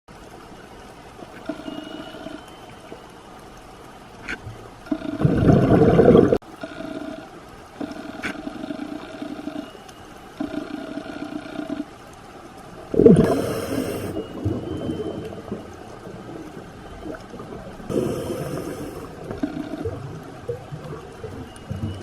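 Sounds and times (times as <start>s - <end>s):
high-pitched alternating underwater tone: 1.2s - 3.3s, 4.8s - 22.0s
bubbling rush of exhaled bubbles: 5.1s - 6.4s, 12.8s - 22.0s.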